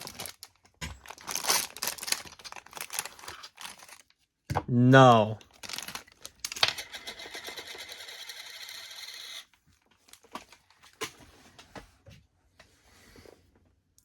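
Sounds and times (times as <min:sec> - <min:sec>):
plastic packaging ripping: 0:00.0 - 0:04.1, 0:05.5 - 0:06.8
wrapper clicks and rustles: 0:00.0 - 0:04.2, 0:05.4 - 0:08.8.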